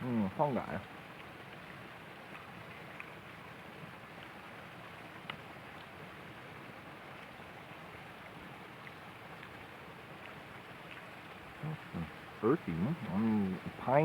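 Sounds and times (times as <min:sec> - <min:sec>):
soft ticks: 0:05.2 - 0:05.9.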